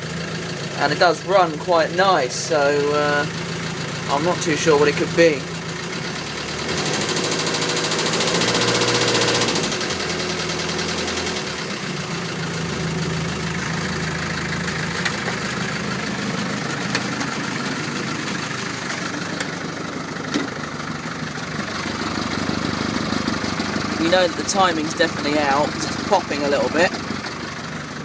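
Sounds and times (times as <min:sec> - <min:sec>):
knocking diesel engine: 0:00.0 - 0:28.0
engine pops: 0:13.2 - 0:27.6.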